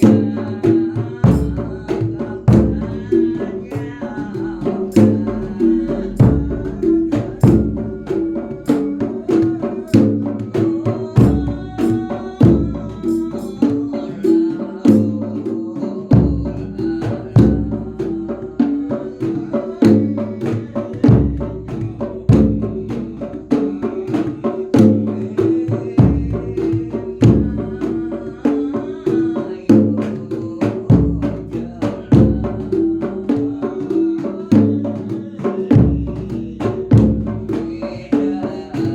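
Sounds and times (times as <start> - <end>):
sharp drum strikes: 0.0 - 15.2
bass drum thumps: 4.9 - 8.1, 35.8 - 37.6.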